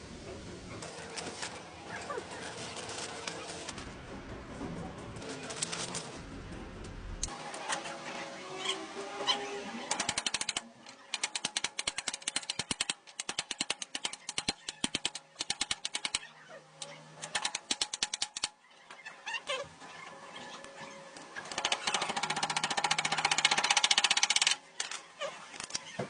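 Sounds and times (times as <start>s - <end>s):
pneumatic air tool rattling: 9.9s - 16.2s, 16.8s - 18.5s, 21.5s - 25.0s.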